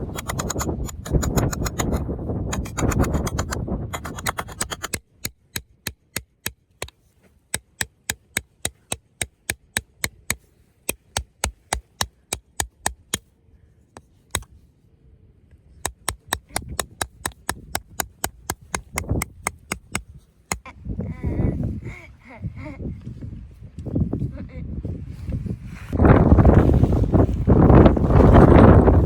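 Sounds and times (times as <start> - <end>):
hammer striking tent pegs: 0.0 - 13.2, 15.8 - 20.6.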